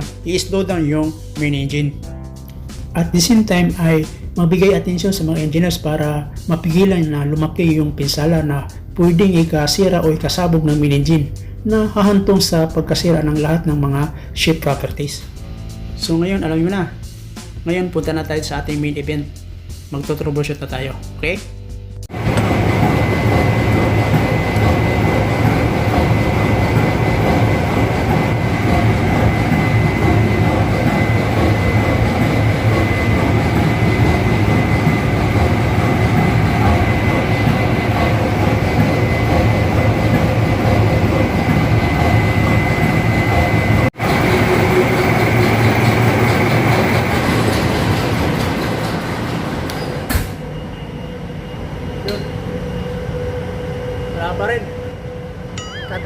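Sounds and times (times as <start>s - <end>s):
engine room machinery din: 21.9s - 56.0s
thin steady whine: 50.3s - 56.0s.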